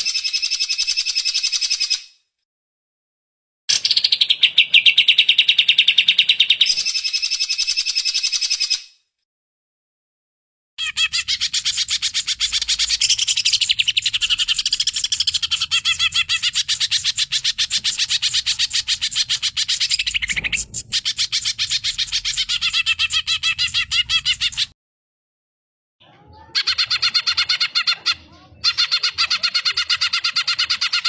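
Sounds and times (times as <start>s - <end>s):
bird chirping and warbling: 3.7s - 8.8s, 10.8s - 24.8s, 26.2s - 31.0s.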